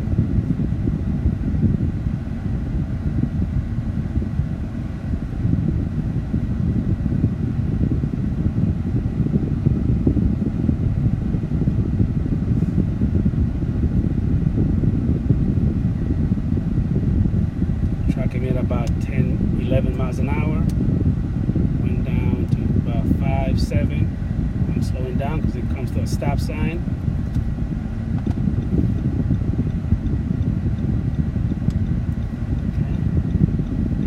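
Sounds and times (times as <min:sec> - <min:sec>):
truck engine and tyre noise: 0:13.8 - 0:34.0.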